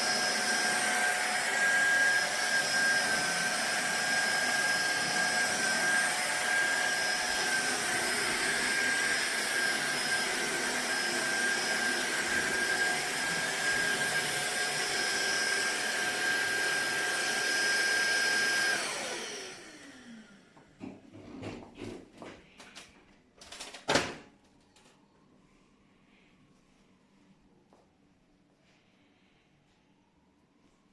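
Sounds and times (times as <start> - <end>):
vacuum cleaner motor whining: 0.0 - 21.3.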